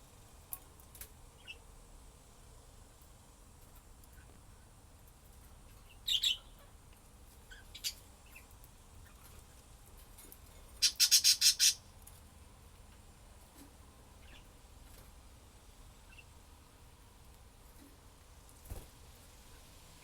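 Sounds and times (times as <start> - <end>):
budgerigar squawks and chirps: 6.1 - 6.7, 7.5 - 8.4, 10.8 - 11.8.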